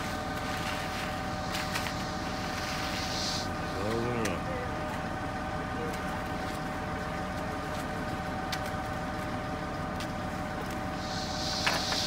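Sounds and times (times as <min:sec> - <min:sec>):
heavy machinery engine drone: 0:00.0 - 0:12.0.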